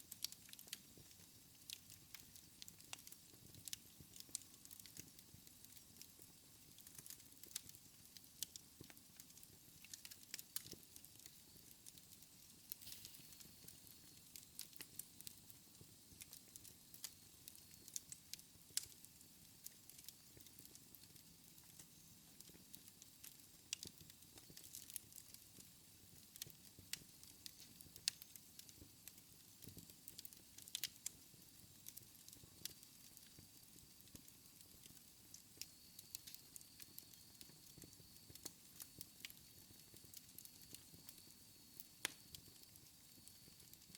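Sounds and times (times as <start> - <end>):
faint steady hiss: 0.0 - 43.9
fire crackling and popping: 0.0 - 43.9.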